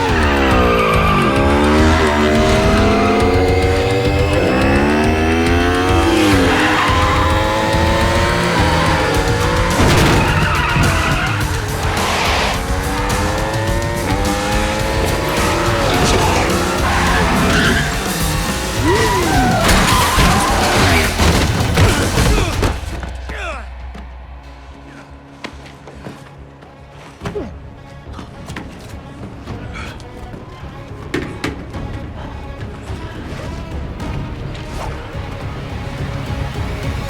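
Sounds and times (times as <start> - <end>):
motorcycle engines revving: 0.0 - 23.2
tyre skids: 0.0 - 24.1
sharp hits: 0.0 - 25.8
film score music: 0.0 - 37.0.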